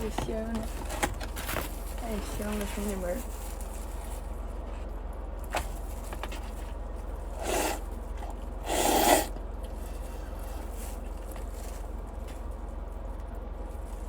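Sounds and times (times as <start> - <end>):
loud noodle slurps: 7.4 - 9.4.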